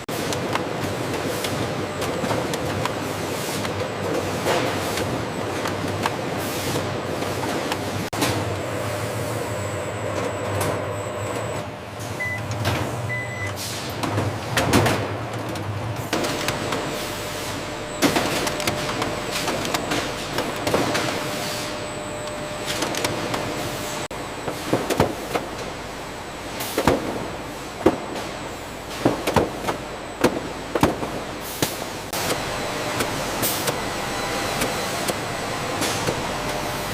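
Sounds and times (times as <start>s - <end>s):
machinery humming: 0.0s - 36.9s
short electronic beeps: 13.1s - 13.6s
machinery clatter and knocks: 14.0s - 16.9s.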